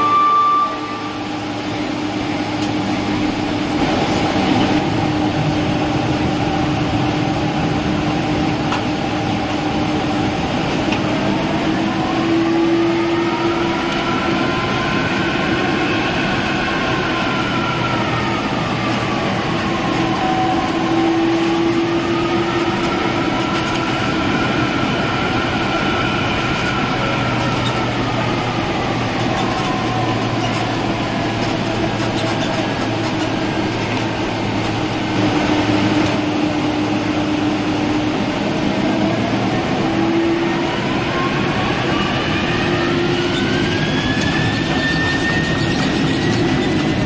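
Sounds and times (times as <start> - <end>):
engine whining tones: 0.0 - 47.0
jet engine cabin rumble: 0.0 - 47.0.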